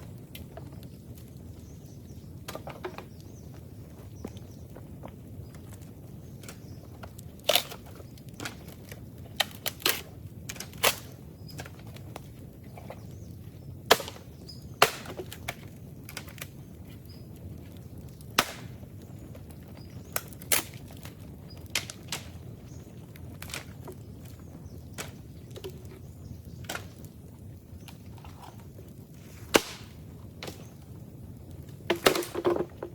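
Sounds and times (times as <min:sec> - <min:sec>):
bamboo bonfire crackling: 0:00.0 - 0:32.9
bamboo popping and cracking: 0:02.4 - 0:13.1, 0:13.8 - 0:32.9
fire low rush: 0:20.8 - 0:31.9.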